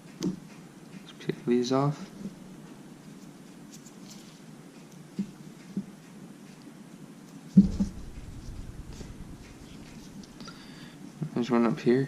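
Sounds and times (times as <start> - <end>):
heavy bump: 7.6 - 10.6.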